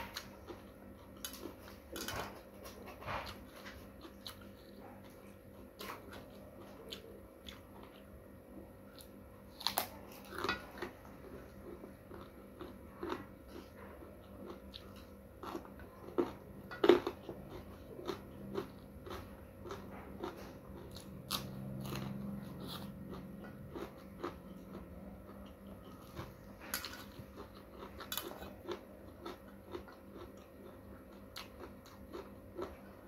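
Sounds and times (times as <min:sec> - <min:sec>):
crunchy bites and chewing: 0:08.8 - 0:33.0.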